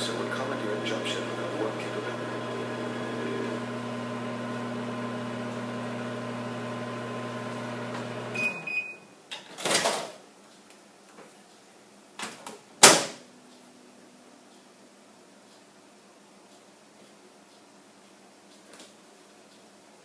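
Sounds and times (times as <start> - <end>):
microwave oven humming: 0.0 - 9.0
microwave beep: 0.0 - 9.1.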